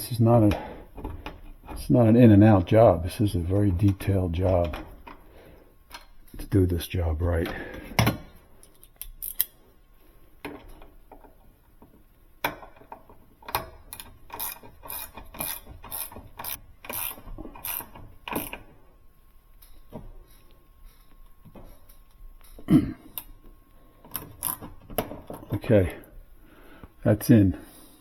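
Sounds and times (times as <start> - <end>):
socket ratchet clicking: 8.7 - 9.5, 13.4 - 18.6, 24.1 - 24.7.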